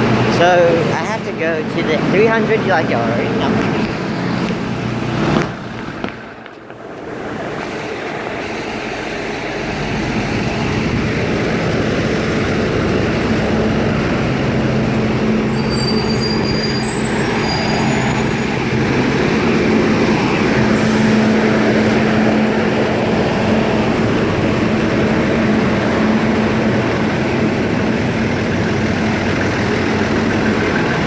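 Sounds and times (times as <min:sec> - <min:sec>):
large vehicle engine humming: 0:00.0 - 0:31.0
high-pitched squeals: 0:15.3 - 0:19.5.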